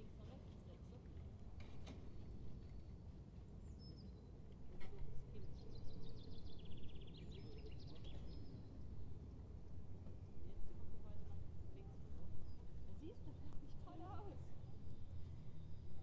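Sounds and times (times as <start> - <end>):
songbird trill: 5.2 - 9.5.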